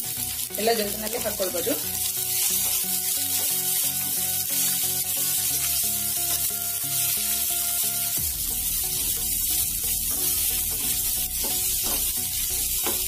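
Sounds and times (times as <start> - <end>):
background music: 0.0 - 13.0
onions sizzling in hot oil: 0.0 - 13.0.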